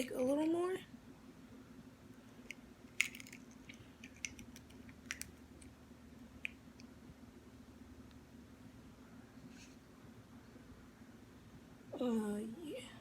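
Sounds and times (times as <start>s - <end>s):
low steady hum: 0.0s - 13.0s
eggshell clicks and cracks: 2.5s - 5.8s.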